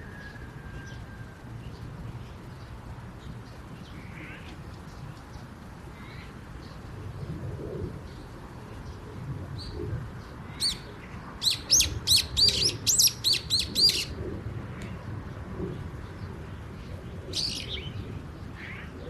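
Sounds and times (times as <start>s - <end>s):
small bird chirping: 10.6s - 14.1s, 17.4s - 18.0s.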